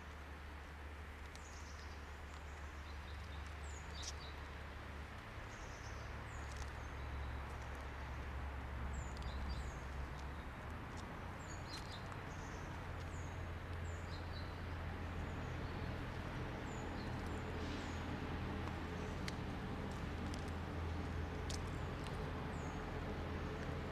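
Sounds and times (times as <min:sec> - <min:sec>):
small birds chirping: 0:01.2 - 0:04.7, 0:05.4 - 0:23.9
faint clicks: 0:18.6 - 0:23.9.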